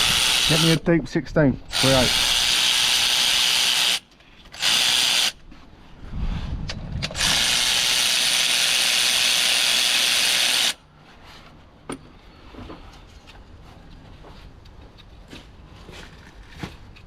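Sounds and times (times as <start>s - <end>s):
power tool spinning bolt: 0.0s - 0.8s, 1.7s - 5.4s, 7.0s - 10.8s.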